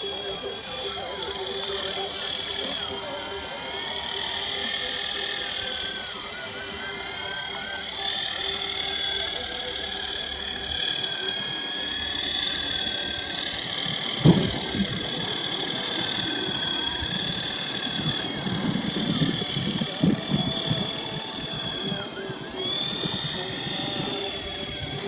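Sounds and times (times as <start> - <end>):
electric motor whine: 0.0 - 25.0
single thump: 14.2 - 15.0.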